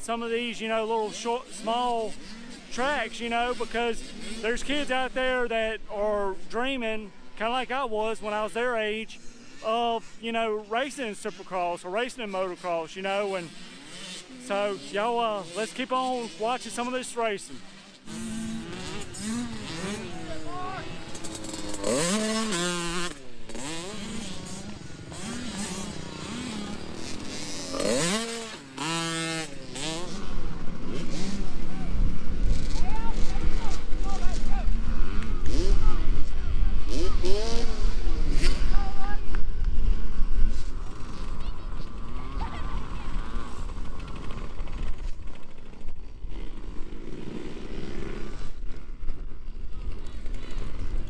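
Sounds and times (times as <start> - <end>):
dirt bike engines revving: 0.0 - 51.0.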